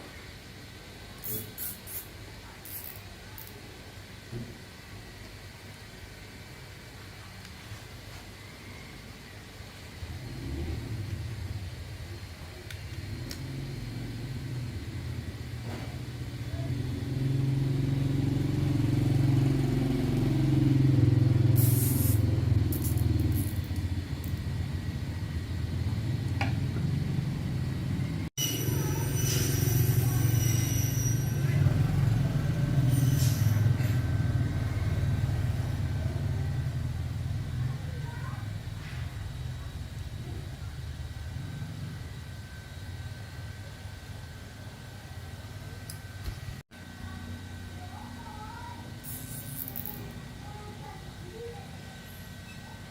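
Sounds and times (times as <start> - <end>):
short hiss: 1.2 - 2.1, 21.6 - 22.2
engine rumbling: 10.0 - 29.1, 29.8 - 42.8.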